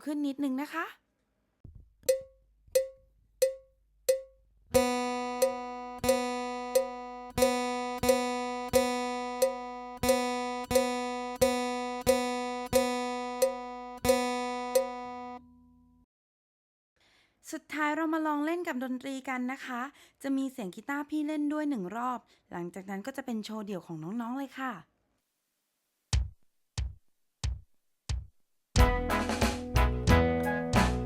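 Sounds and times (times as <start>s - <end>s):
count-in clicks: 2.0s - 15.5s
guitar string plucked: 2.0s - 15.5s.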